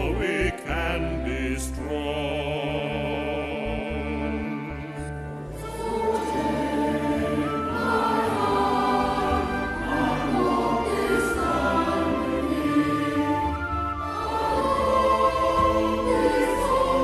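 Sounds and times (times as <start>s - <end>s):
choir singing: 0.0s - 17.0s.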